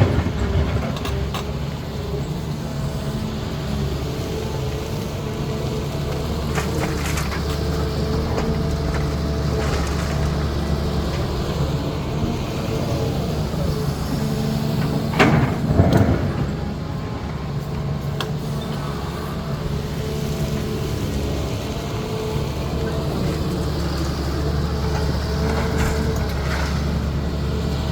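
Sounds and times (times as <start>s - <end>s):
excavator diesel engine running: 0.0s - 27.9s
bucket scraping and crashing in rock: 8.8s - 11.3s, 13.4s - 17.6s.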